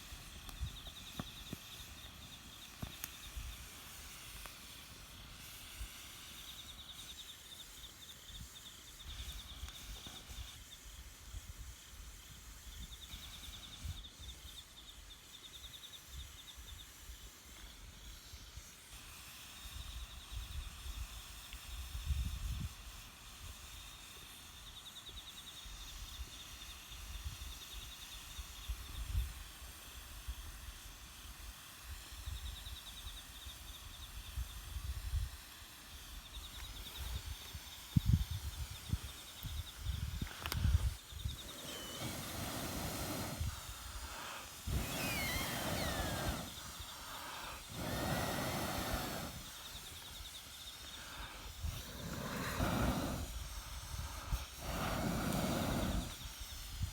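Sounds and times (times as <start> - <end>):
fire crackles: 0.0 - 13.4, 35.9 - 56.9
hissing puffs of breath: 0.0 - 14.6, 34.3 - 56.9
faint high whine: 36.1 - 56.9.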